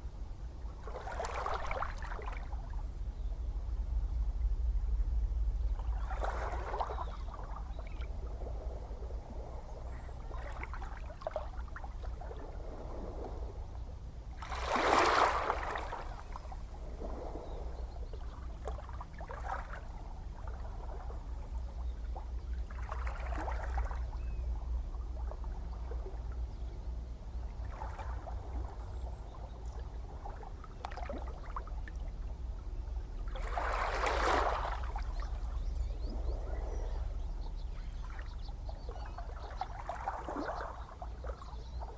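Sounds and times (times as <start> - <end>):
low rumble of surf: 0.0 - 41.9
ocean waves breaking: 14.4 - 17.8, 33.3 - 39.1.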